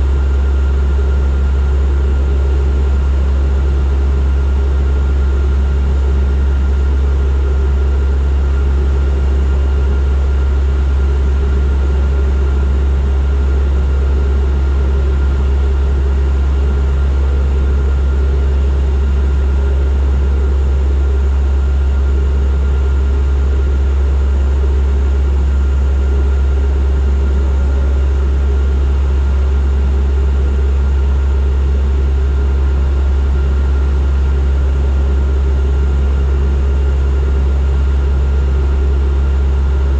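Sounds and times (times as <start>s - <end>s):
thin steady whine: 6.9s - 31.9s
propeller engines droning: 25.0s - 30.6s.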